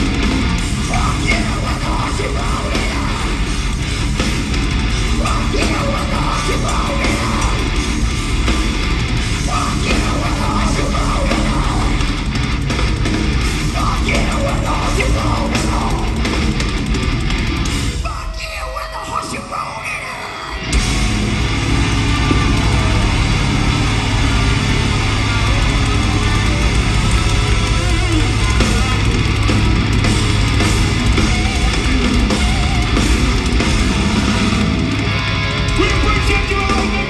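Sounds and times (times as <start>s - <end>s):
heavy metal band playing: 0.0s - 37.0s
shouted vocals: 0.8s - 3.7s, 5.0s - 8.1s, 9.4s - 12.3s, 13.6s - 16.5s, 18.0s - 37.0s.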